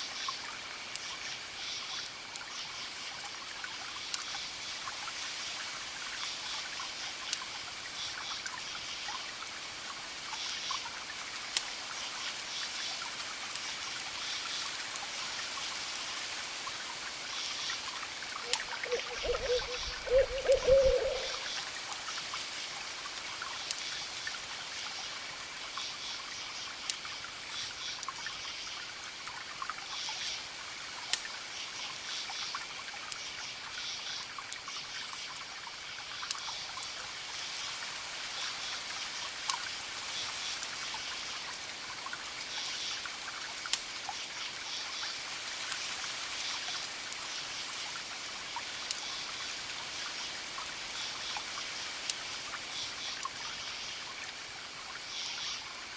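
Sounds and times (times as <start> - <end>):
crickets chirping: 18.4 - 21.6
campfire crackling and popping: 23.6 - 25.0, 26.7 - 27.1.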